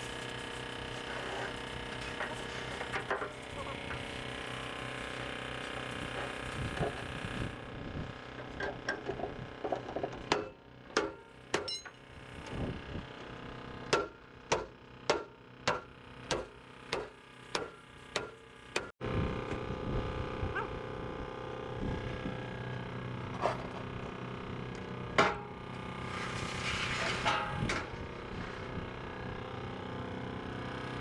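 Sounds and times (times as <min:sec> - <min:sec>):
hammer striking metal: 0:10.3 - 0:12.0.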